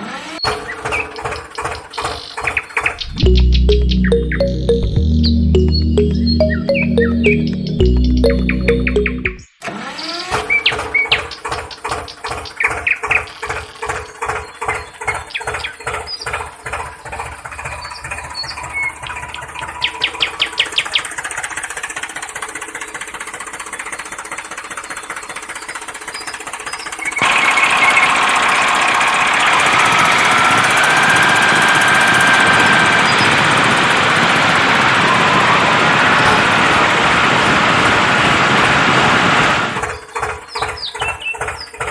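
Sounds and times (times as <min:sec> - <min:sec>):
tractor engine chugging: 0:11.4 - 0:34.2, 0:39.8 - 0:41.9.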